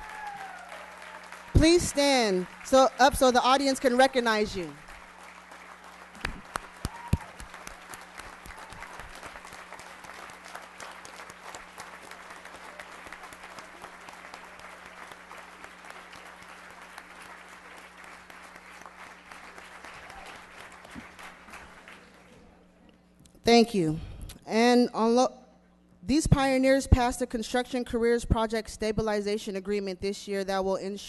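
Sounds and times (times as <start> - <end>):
audience applauding: 0.0 - 22.6.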